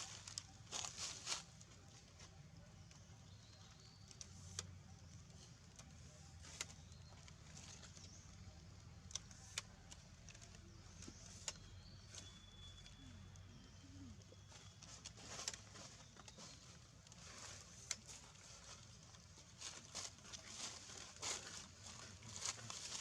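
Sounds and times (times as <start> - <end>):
faint outdoor hum: 0.0 - 23.0
faint high whistle-like tones: 11.6 - 15.3.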